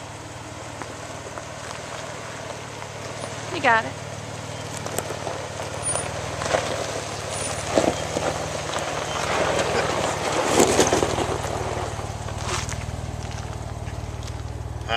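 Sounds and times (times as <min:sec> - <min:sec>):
car engine idling: 0:00.0 - 0:14.9
rustling: 0:04.6 - 0:14.8.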